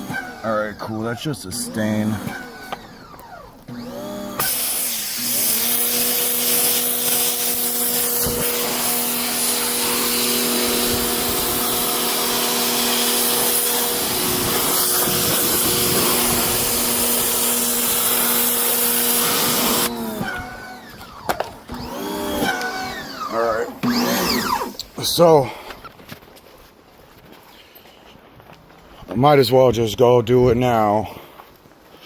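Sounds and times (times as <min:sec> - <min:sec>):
pressure washer motor hum: 0:00.0 - 0:25.0
water spray hissing: 0:04.4 - 0:19.9.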